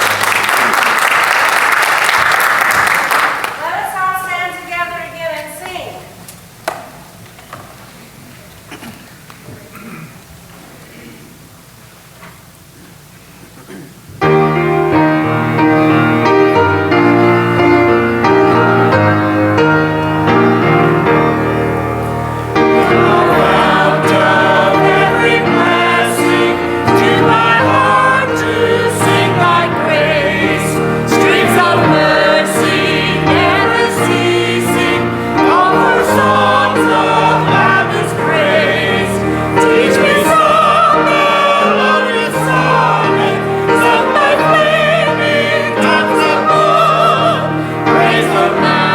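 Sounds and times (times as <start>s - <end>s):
gospel singing voices: 14.2s - 48.9s
instrumental accompaniment chords: 14.2s - 48.9s.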